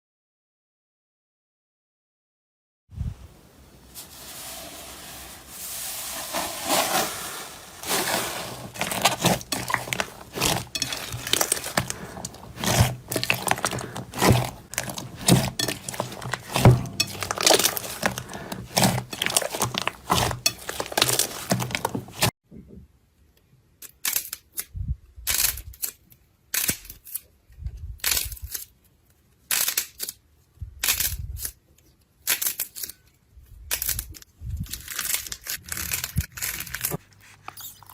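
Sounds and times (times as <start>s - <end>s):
slime crunches: 6.2s - 22.3s
slime crackling and popping: 7.8s - 22.3s.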